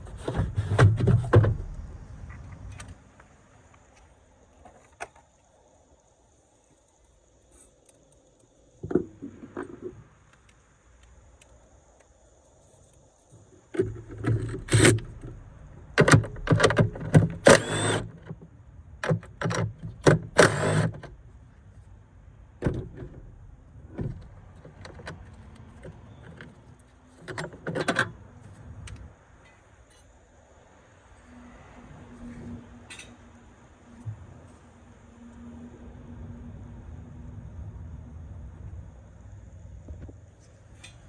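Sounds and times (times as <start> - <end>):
sharp clicks and knocks: 13.7 - 21.2.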